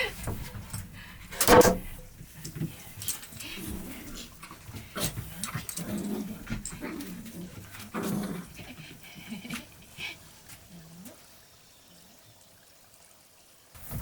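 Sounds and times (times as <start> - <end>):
light clicks and knocks: 0.0 - 7.8
dog making low vocal sounds: 3.5 - 11.4.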